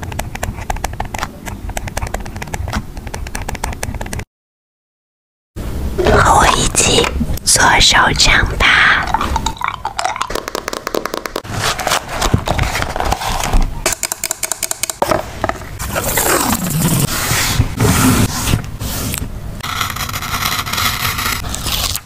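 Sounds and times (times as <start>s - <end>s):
paper scraping and rustling: 11.4s - 13.7s, 15.8s - 22.0s.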